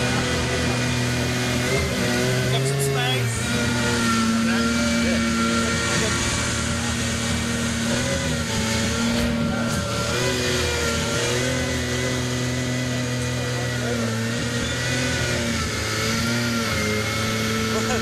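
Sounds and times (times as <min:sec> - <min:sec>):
car engine idling: 0:17.6 - 0:18.0.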